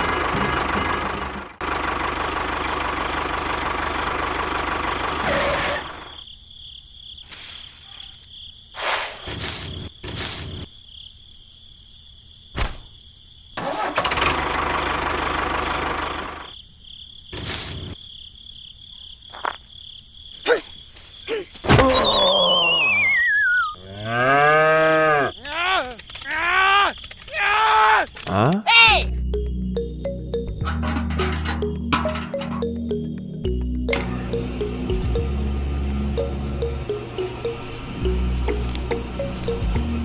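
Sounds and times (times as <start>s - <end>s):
small engine running: 0.0s - 6.1s, 13.6s - 16.5s, 33.9s - 40.0s
whistle sliding down in pitch: 21.8s - 23.8s.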